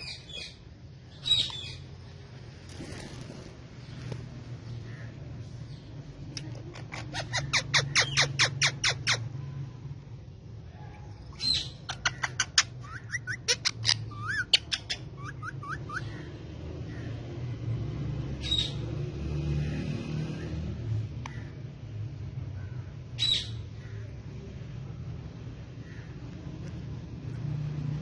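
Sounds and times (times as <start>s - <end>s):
parakeet shrill calls: 6.7s - 9.3s, 11.3s - 16.3s.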